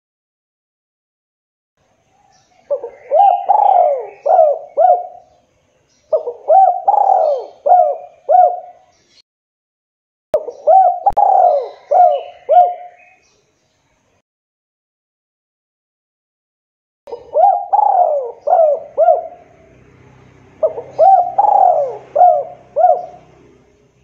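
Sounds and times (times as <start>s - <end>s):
dove cooing: 2.6s - 5.4s, 6.1s - 8.9s, 10.4s - 13.2s, 17.1s - 19.8s, 20.6s - 23.8s.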